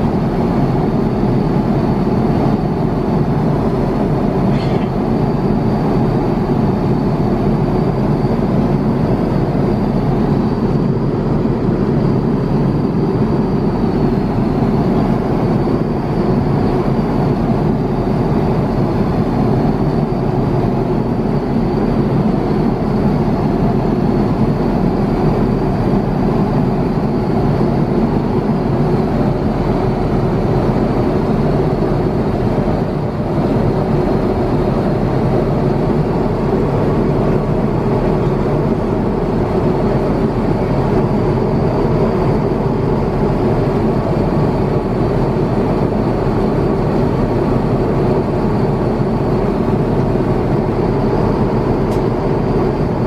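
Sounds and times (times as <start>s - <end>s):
airplane cabin airflow and engines: 0.0s - 53.0s.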